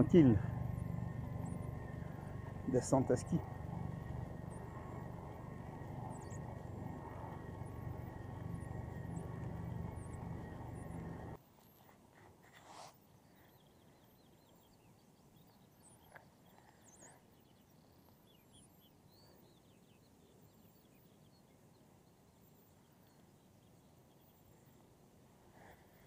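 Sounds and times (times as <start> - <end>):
faint bird chirps: 0.0 - 26.0.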